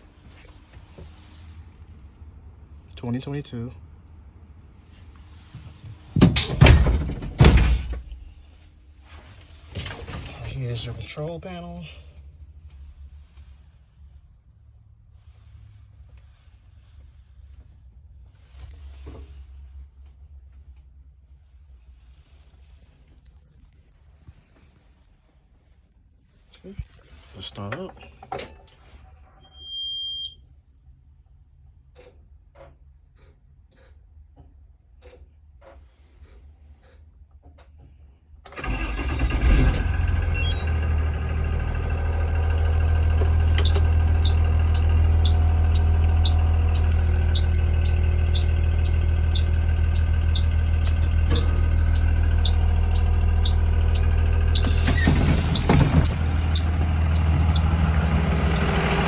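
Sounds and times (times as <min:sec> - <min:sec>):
bus engine cranking and idling: 0:04.5 - 0:14.2, 0:38.5 - 0:59.0
warning beep: 0:40.2 - 0:40.7.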